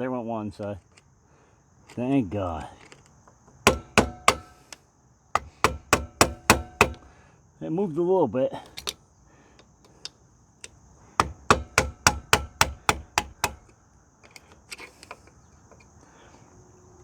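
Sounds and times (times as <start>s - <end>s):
hammer blows on metal: 3.7s - 4.8s, 5.4s - 7.1s, 11.2s - 13.7s.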